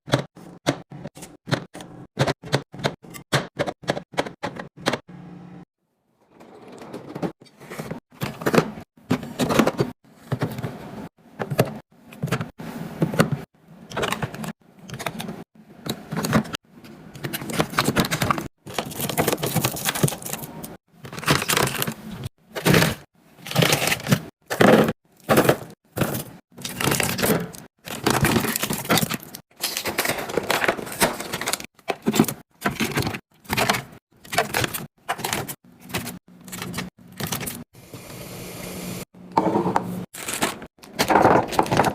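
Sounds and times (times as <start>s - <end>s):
containers and packaging clattering: 6.4s - 16.6s, 17.2s - 37.6s, 39.3s - 41.9s.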